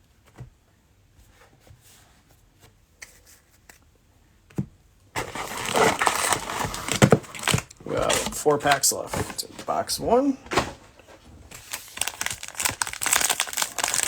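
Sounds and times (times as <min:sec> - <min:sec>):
cellophane wrapper crinkling: 0:05.2 - 0:10.0, 0:11.5 - 0:14.0.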